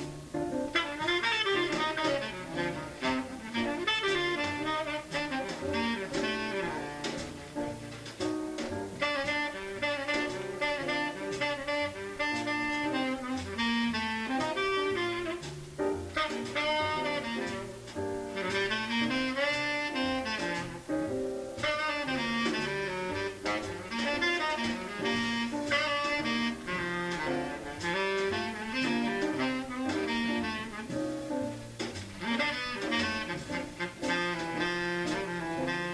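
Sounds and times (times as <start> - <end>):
walking double bass: 0.0 - 35.9
tenor saxophone runs: 0.8 - 7.5, 21.6 - 30.9, 32.2 - 35.9.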